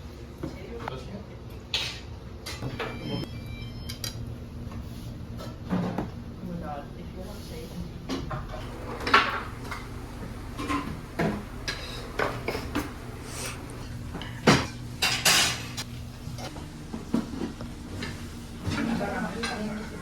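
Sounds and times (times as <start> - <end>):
low steady hum: 2.8 - 20.0
dishes and cutlery clinking: 8.1 - 16.5, 17.1 - 20.0.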